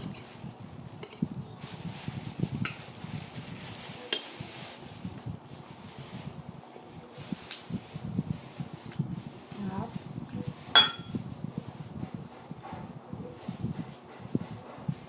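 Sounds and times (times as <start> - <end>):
tableware clinking: 0.0 - 0.4, 1.0 - 1.4, 10.7 - 11.2.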